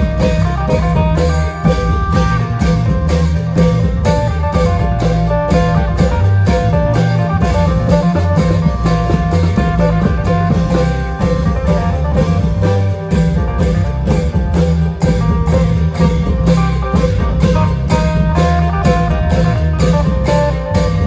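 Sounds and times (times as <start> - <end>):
amplified plucked-string melody: 0.0 - 21.0
long drums beating: 0.0 - 21.0.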